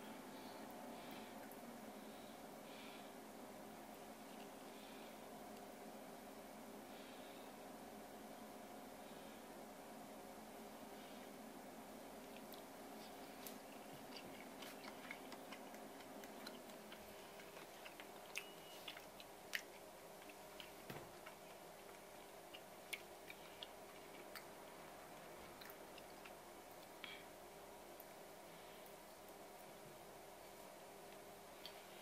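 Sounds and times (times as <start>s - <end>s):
room hum: 0.0s - 32.0s
person chewing: 12.3s - 24.6s, 25.2s - 27.1s.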